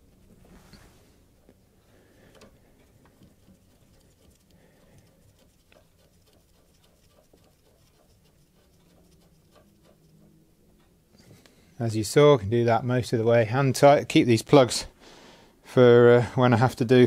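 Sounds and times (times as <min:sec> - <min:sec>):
nut threading clicks: 0:02.3 - 0:10.1.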